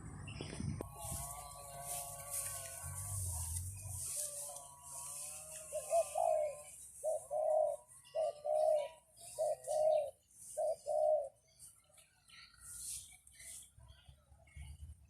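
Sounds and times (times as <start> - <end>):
dove cooing: 5.6 - 11.4.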